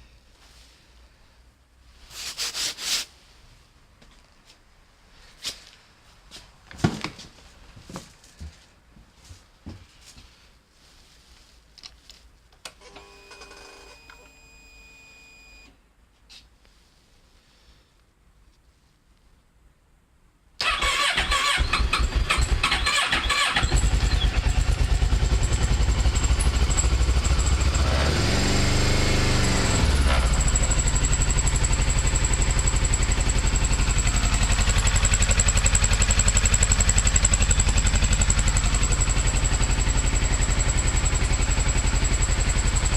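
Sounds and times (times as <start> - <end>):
electric starter cranking: 20.6 - 24.8
motorcycle engine revving: 20.9 - 42.9
motorcycle engine idling: 22.1 - 42.9.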